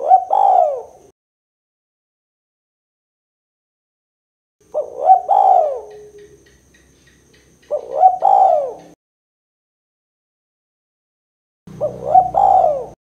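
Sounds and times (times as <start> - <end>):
dove cooing: 0.0 - 1.1, 4.6 - 9.0, 11.7 - 13.0.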